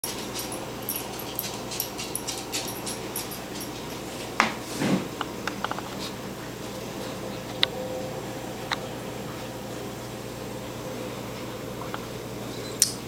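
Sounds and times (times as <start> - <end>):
low hum: 6.2 - 13.0.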